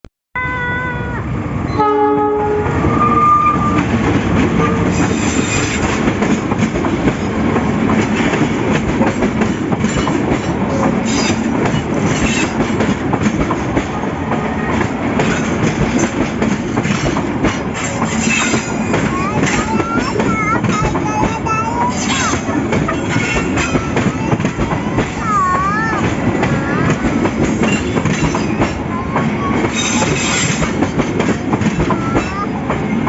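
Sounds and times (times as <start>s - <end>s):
train rumbling past: 0.4s - 33.0s
train horn: 1.7s - 3.9s, 4.6s - 5.2s
wheels clattering over rail joints: 14.8s - 32.9s.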